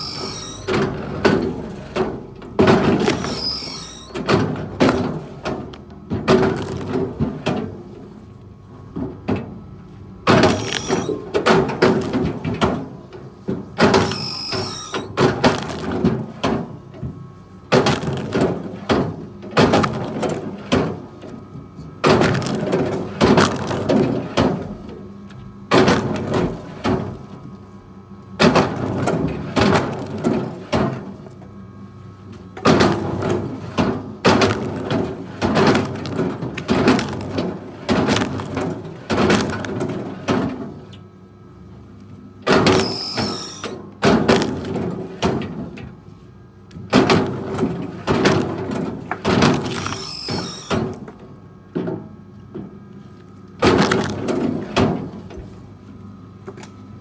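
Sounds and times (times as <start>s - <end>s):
high squeal: 0.0s - 0.7s, 3.0s - 4.2s, 10.4s - 11.2s, 14.0s - 15.2s, 42.7s - 43.8s, 49.8s - 50.8s
wood cracking and knocking: 34.3s - 40.0s.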